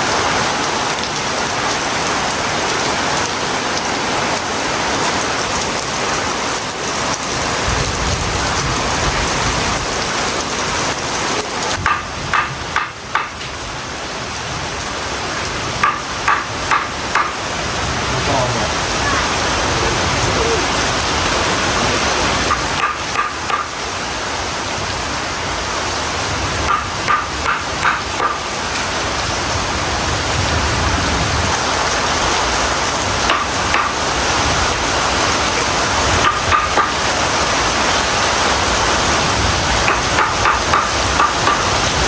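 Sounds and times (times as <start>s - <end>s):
heavy rain pouring: 0.0s - 42.0s
sharp knocks: 11.8s - 13.5s, 15.8s - 17.4s, 22.5s - 23.7s, 26.7s - 28.4s, 36.2s - 37.0s, 39.9s - 41.7s.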